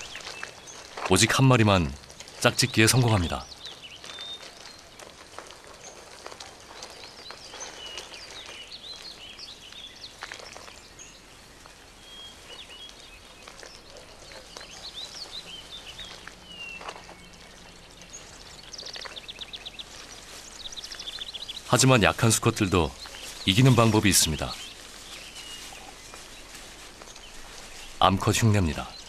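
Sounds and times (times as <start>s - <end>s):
songbird chirps and whistles: 12.0s - 13.7s.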